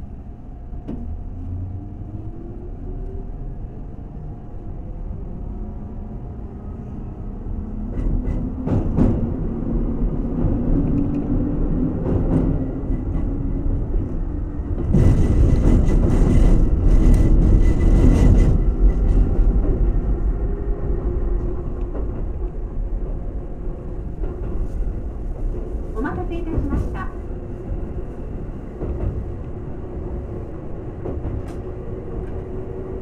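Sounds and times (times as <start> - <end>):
train wheels rumbling on rail: 0.0 - 33.0
rail-joint clicks: 30.8 - 32.6.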